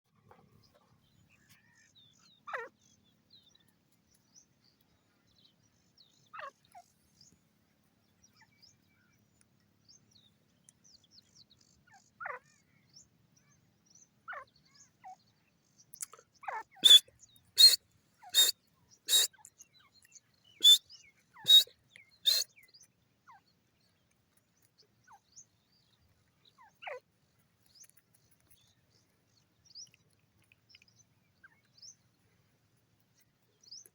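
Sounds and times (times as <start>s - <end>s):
bird calling shrill notes: 16.8s - 17.0s, 17.6s - 18.5s, 19.1s - 19.3s, 21.5s - 21.7s, 22.3s - 22.5s.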